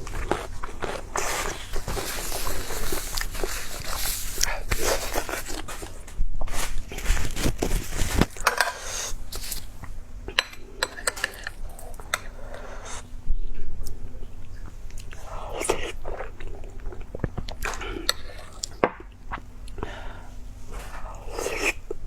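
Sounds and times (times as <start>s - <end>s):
person chewing crunchy food: 0.0s - 6.0s.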